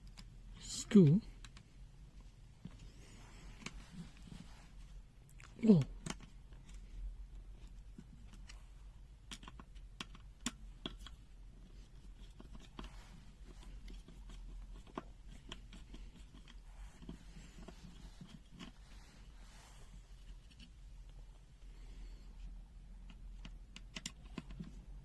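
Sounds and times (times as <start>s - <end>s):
low mains hum: 0.0s - 25.0s
plastic parts and screws clicking: 5.3s - 18.8s, 22.4s - 24.9s.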